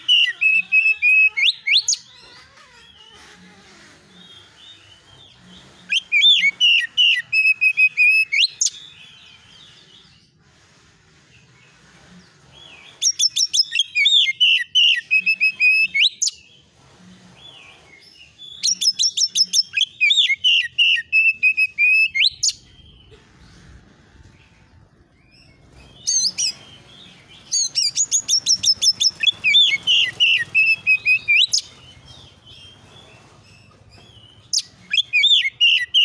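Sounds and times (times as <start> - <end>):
magpie-robin chattering song: 13.0 - 16.4, 18.6 - 22.9, 27.4 - 32.8, 34.4 - 36.0.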